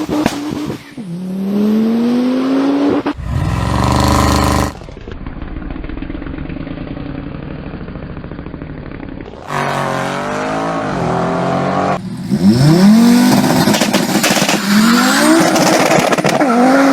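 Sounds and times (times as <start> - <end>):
car engine idling and revving: 0.0 - 16.9
car accelerating away: 1.2 - 5.2.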